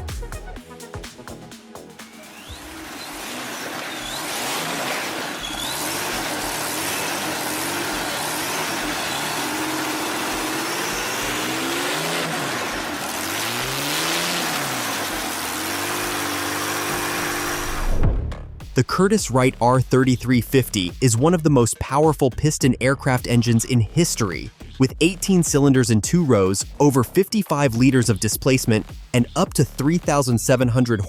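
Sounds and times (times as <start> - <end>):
aircraft piston engine revving: 1.8 - 18.0.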